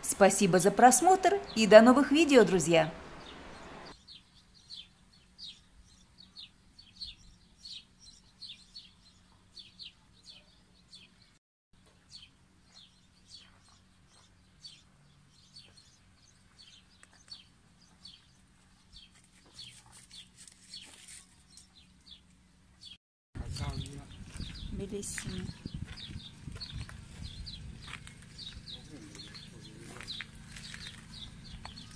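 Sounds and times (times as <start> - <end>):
small birds chirping: 0.0 - 31.9.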